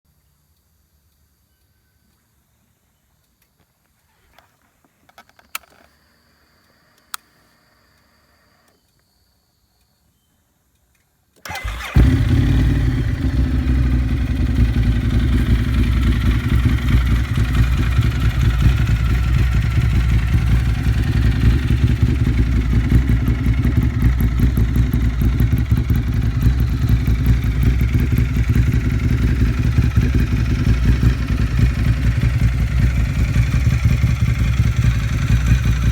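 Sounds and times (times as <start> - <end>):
faint clicks: 0.1 - 11.9.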